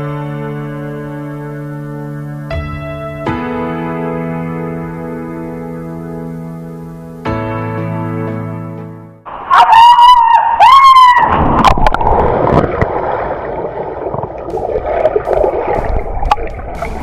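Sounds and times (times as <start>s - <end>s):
piano tune: 0.0s - 9.5s, 13.0s - 17.0s.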